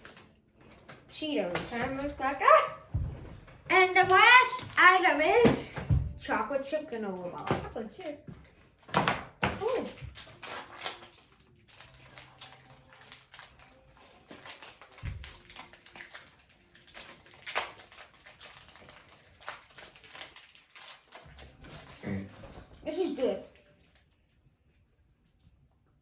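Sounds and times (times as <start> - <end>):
wrapper crinkling: 9.6 - 24.2.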